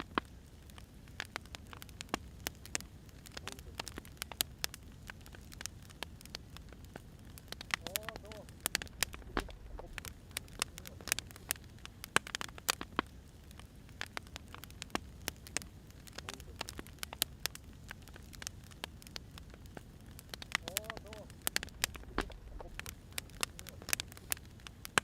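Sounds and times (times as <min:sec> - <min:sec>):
firewood popping and snapping: 0:00.0 - 0:25.0
low rumble of flames: 0:00.0 - 0:25.0.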